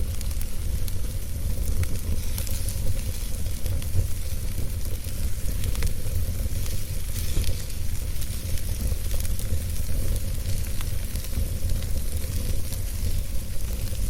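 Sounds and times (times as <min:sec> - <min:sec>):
wood fire burning and crackling: 0:00.0 - 0:14.0.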